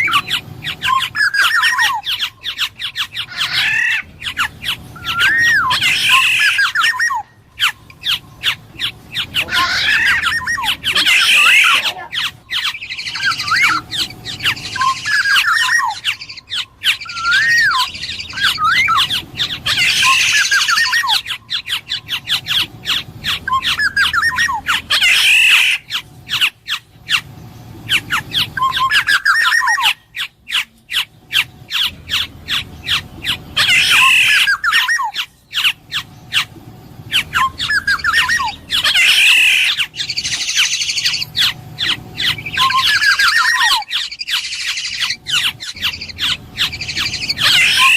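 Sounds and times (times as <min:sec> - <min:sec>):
bird whistling fluty notes: 0:00.0 - 0:27.3, 0:27.9 - 0:36.5, 0:37.1 - 0:47.9
bird harsh nasal squawks: 0:00.0 - 0:47.9.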